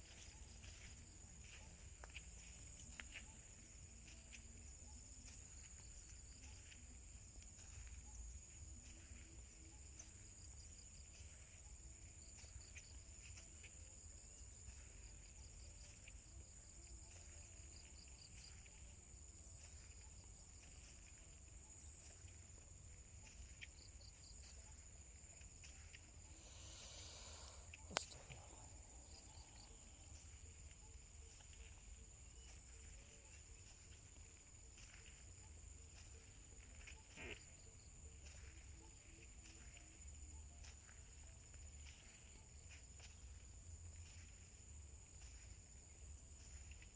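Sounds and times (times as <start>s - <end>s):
insect chirping rapidly: 17.1s - 38.6s
insect trilling: 25.6s - 31.4s.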